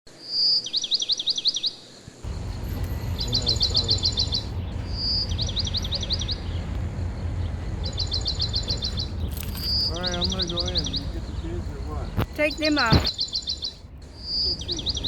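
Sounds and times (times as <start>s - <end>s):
songbird singing: 0.2s - 15.0s
low outdoor rumble: 2.2s - 15.0s.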